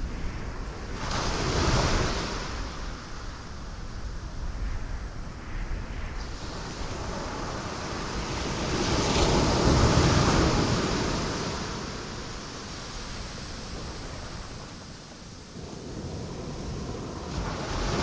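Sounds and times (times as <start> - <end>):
ocean waves crashing on rocks: 6.4 - 18.0.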